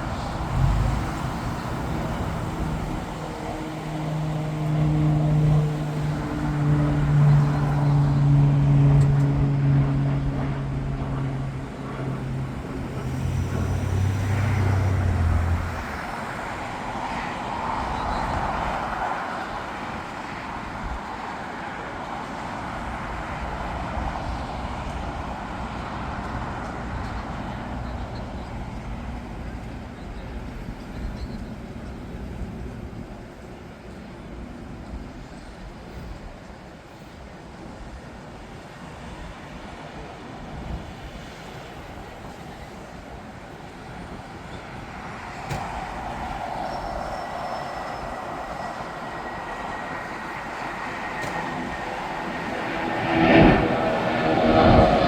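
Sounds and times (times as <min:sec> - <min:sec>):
vehicle engine humming: 0:00.0 - 0:16.7, 0:44.4 - 0:55.0
traffic noise: 0:00.0 - 0:55.0.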